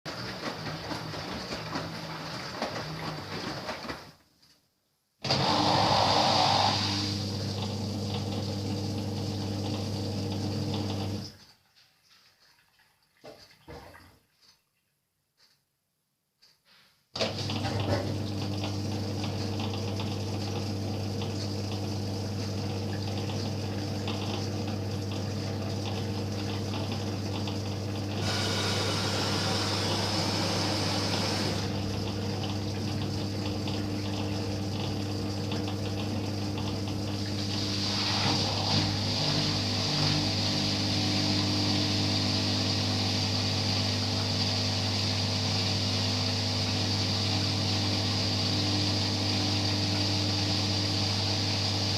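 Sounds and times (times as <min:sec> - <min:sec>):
water gushing: 0:00.1 - 0:04.0, 0:05.2 - 0:11.4, 0:17.2 - 0:51.9
drain pump humming: 0:00.1 - 0:04.2, 0:05.2 - 0:11.5, 0:17.2 - 0:51.9.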